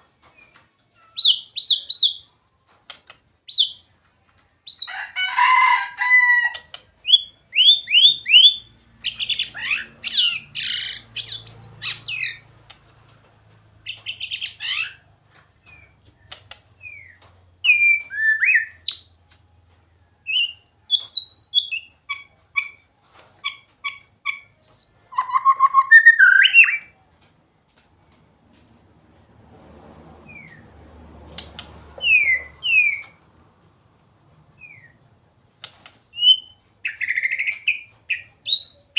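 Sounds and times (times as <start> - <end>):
bird singing whistles and trills: 7.0 - 12.4, 20.3 - 22.7, 24.3 - 26.9, 32.0 - 33.2, 36.1 - 38.9.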